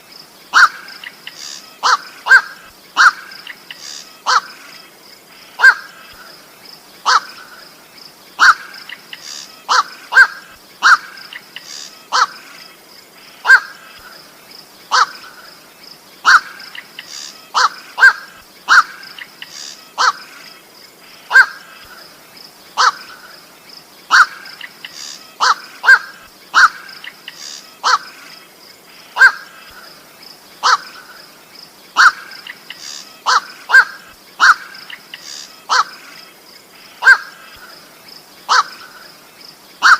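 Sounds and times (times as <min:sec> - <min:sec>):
harsh bird calls: 0:00.5 - 0:07.8, 0:08.4 - 0:39.9.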